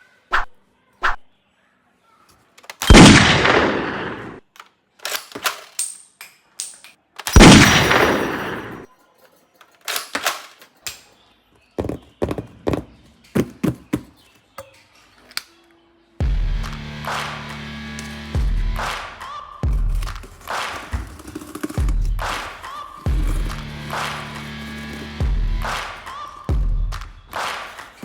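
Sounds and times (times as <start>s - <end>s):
sharp shots and clicks: 2.7s - 4.4s, 7.2s - 8.8s
loud gunshot blasts: 2.9s - 4.4s, 7.4s - 8.8s.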